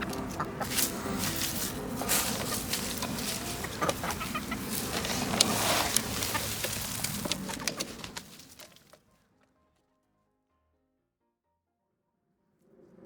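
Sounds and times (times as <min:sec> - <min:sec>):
chickens clucking: 0:00.0 - 0:09.0.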